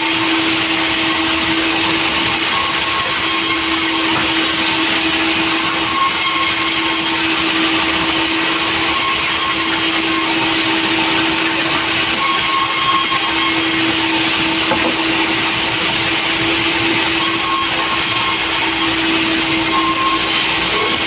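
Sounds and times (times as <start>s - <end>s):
sawmill saw running: 0.0s - 21.0s.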